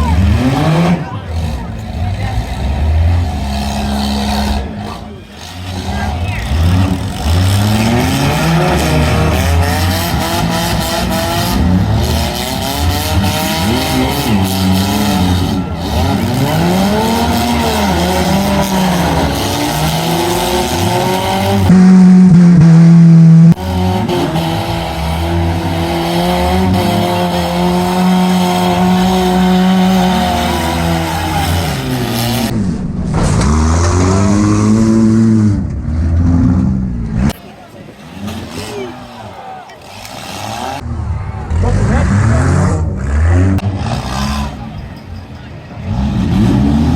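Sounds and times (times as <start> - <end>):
tyres squealing: 0.0 - 21.7
car engines revving: 0.0 - 46.9.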